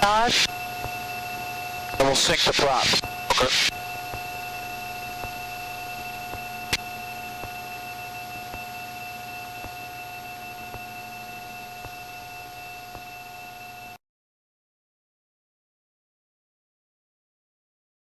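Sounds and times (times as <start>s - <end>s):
aircraft engines droning: 0.0s - 14.0s
faint propeller beat pulse: 0.4s - 13.3s.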